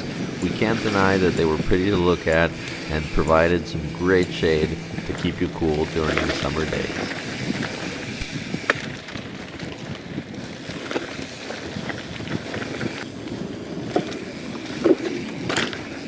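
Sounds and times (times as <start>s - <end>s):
tyre and wind noise: 7.2s - 16.0s.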